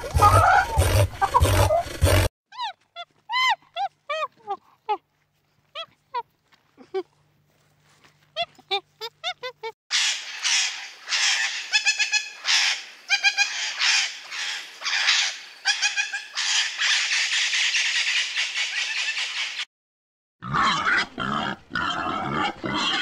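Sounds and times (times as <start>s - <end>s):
macaw squawking harshly: 9.9s - 19.6s.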